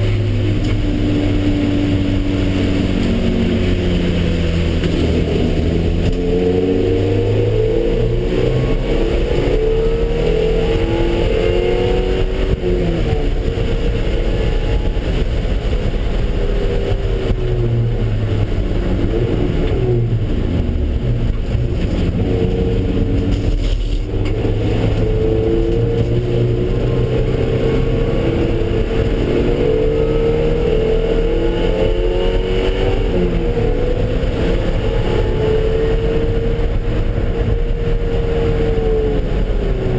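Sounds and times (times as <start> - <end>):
car engine accelerating hard: 0.0 - 39.9
road and wind noise: 0.0 - 39.9.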